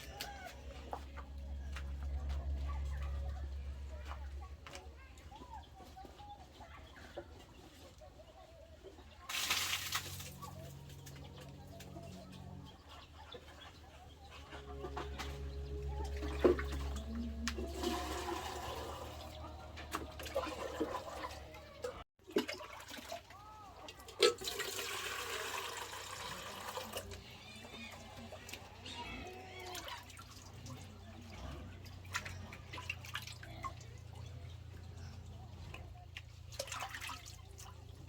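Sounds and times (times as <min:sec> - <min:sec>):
water pouring and splashing: 0:09.3 - 0:12.2, 0:14.8 - 0:27.2, 0:29.6 - 0:34.2, 0:36.2 - 0:38.0.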